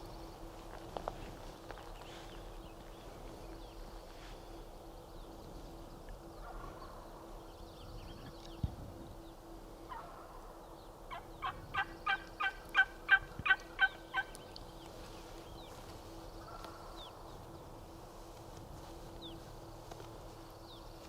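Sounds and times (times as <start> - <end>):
turkey yelps: 11.1 - 14.3.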